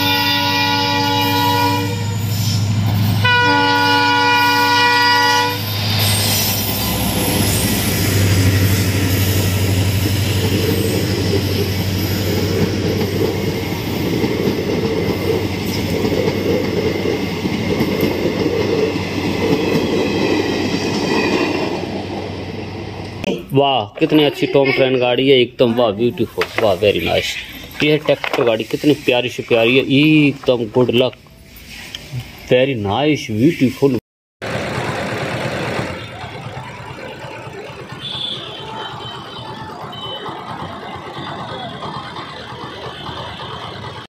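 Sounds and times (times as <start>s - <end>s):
train horn blasts: 0.0s - 2.3s, 3.2s - 5.7s, 37.9s - 40.3s
train coaches rumbling past: 0.0s - 33.3s, 34.4s - 44.0s
wheels clattering over rails: 34.4s - 44.0s.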